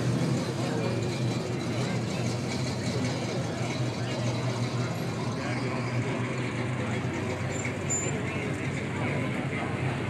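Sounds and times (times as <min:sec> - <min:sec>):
car engines idling: 0:00.0 - 0:10.0.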